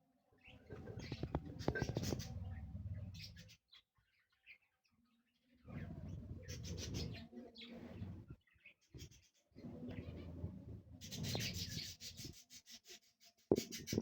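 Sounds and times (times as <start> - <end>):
budgerigars chirping: 11.0 - 13.0.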